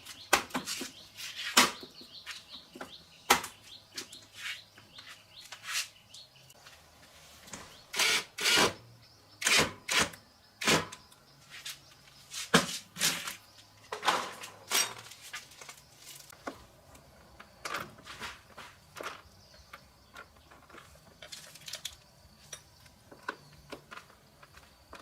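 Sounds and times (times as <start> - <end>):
tools and parts clicking and scraping: 9.4 - 25.0.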